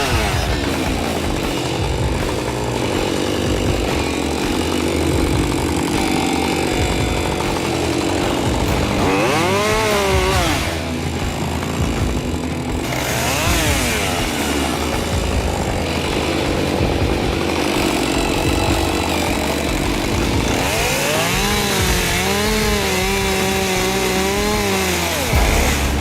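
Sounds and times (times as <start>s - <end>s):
chainsaw engine revving: 0.0s - 26.0s.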